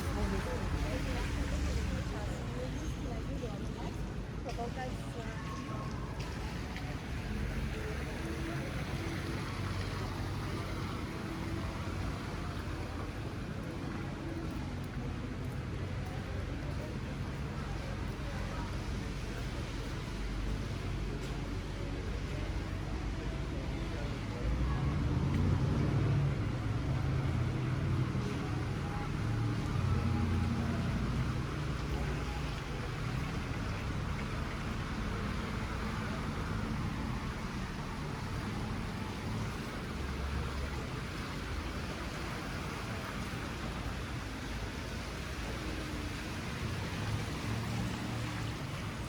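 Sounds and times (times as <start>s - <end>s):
city background hum: 0.0s - 49.0s.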